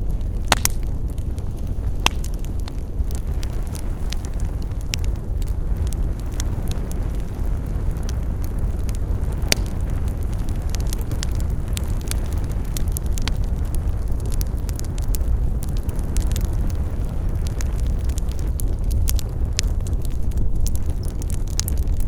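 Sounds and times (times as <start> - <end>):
campfire burning: 0.0 - 22.0
wood crackling and popping: 0.0 - 22.0.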